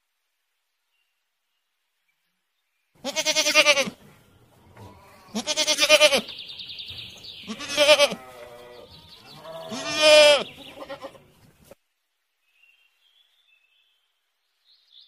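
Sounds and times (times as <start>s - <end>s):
livestock bleating: 3.0s - 4.0s, 4.7s - 6.3s, 7.4s - 11.3s.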